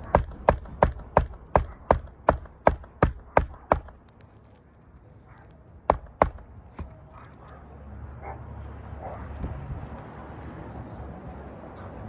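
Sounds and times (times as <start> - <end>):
hammer striking nails: 0.0 - 4.1, 5.9 - 7.0.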